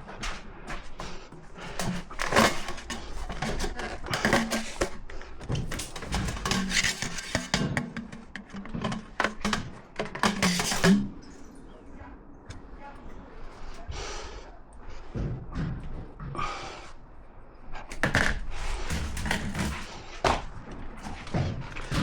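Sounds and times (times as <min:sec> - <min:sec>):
hard objects clattering: 0:00.0 - 0:12.8, 0:17.8 - 0:22.0.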